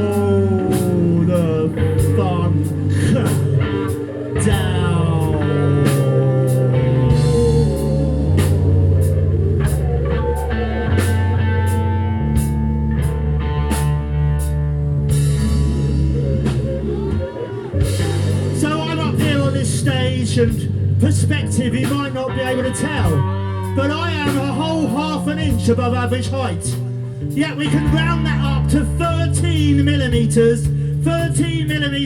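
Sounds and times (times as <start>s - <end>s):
bass guitar: 0.0s - 32.0s
drum kit with cymbals: 0.0s - 32.0s
electric guitars: 0.0s - 32.0s
gliding high tones: 15.2s - 20.8s.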